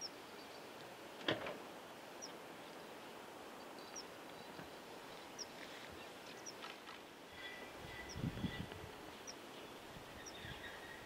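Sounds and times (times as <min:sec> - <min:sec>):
faint steady hiss: 0:00.0 - 0:11.0
small bird high calls: 0:07.3 - 0:11.0.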